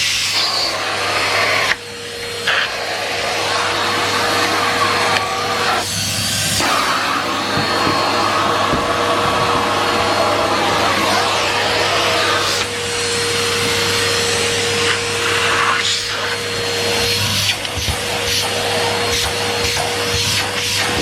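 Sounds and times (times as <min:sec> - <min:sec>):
vacuum cleaner running: 0:00.0 - 0:21.0
floor tool scuffs and knocks: 0:06.1 - 0:10.0.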